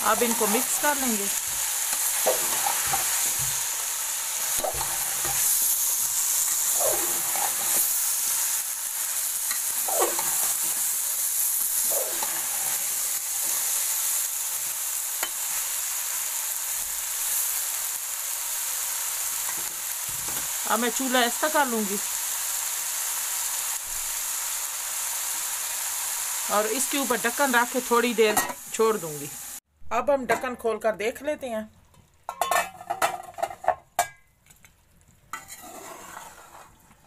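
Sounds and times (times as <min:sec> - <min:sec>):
vegetables sizzling in hot oil: 0:00.0 - 0:29.6
metal spoon scraping a pot: 0:35.3 - 0:36.8.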